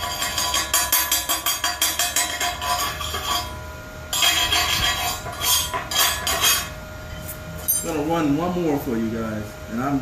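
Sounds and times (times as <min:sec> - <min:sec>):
hammer tapping metal: 0:00.0 - 0:06.7
scraping on metal: 0:00.0 - 0:08.0.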